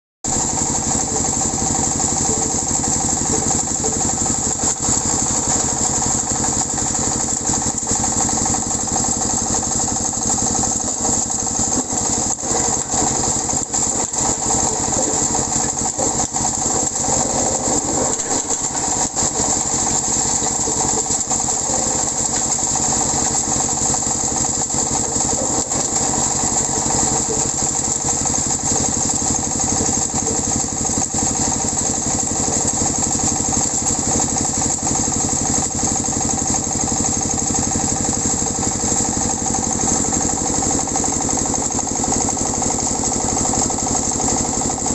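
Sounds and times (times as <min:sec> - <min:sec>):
shredder clattering: 0:00.3 - 0:44.9
shredder motor droning: 0:00.3 - 0:44.9.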